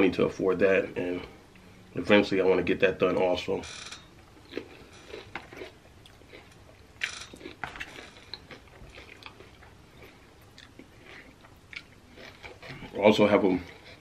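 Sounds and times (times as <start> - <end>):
person chewing crunchy chips: 4.4 - 14.0.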